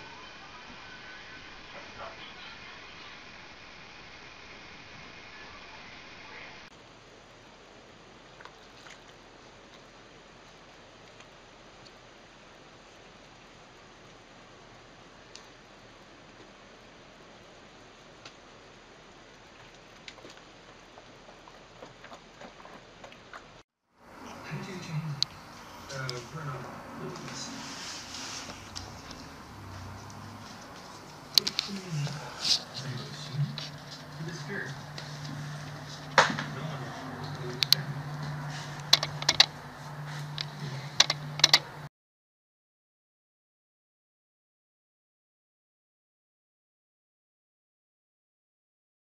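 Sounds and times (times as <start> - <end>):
steady low hum: 0.0 - 41.9
water dripping: 8.2 - 12.0.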